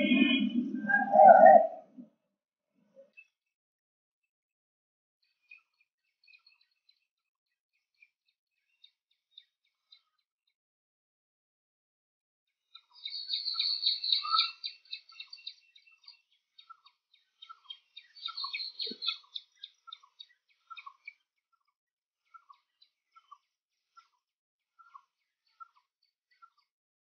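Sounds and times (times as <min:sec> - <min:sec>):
high chirping twittering birds: 0:00.0 - 0:01.8, 0:05.2 - 0:10.3, 0:12.6 - 0:24.2, 0:24.8 - 0:26.7
lower hooked bird calls: 0:00.0 - 0:01.9, 0:12.8 - 0:16.8, 0:17.4 - 0:21.0.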